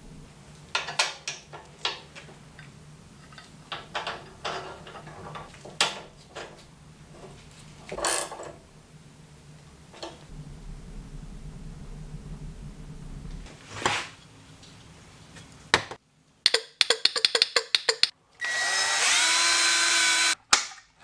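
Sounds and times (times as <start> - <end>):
clicks and knocks of tools: 0.7 - 8.6, 15.8 - 18.2.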